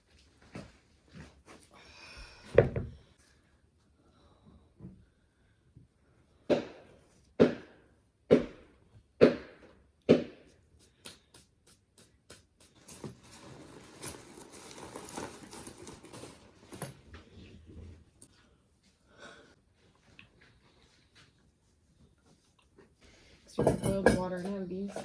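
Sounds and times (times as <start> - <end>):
rustling clatter: 12.8 - 18.3.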